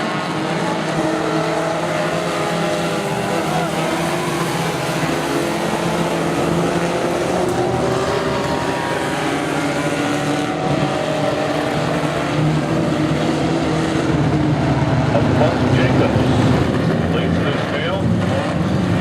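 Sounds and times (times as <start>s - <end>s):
truck engines running hard: 0.0s - 19.0s.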